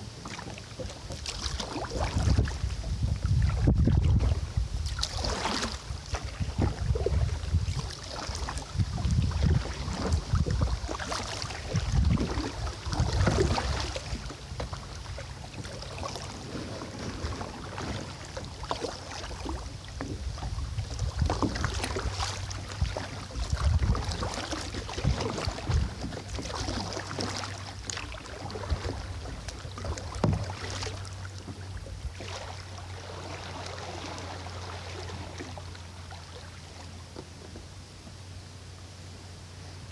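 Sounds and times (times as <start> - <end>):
low wind rumble: 0.0 - 39.9
paddle splashing in water: 0.0 - 39.9.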